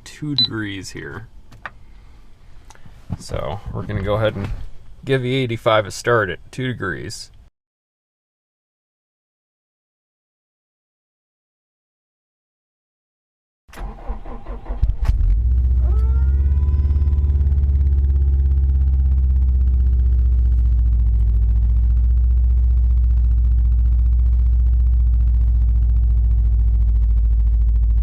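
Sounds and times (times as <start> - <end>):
car engine starting and idling: 13.7 - 28.0.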